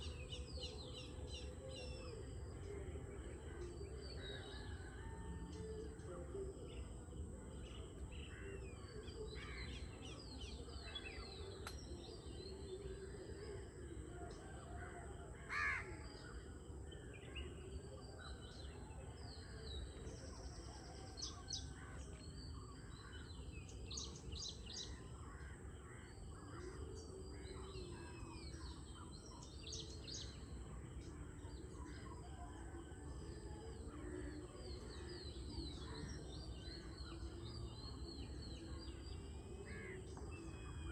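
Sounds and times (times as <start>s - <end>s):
birds chirping and calling: 34.0s - 40.9s.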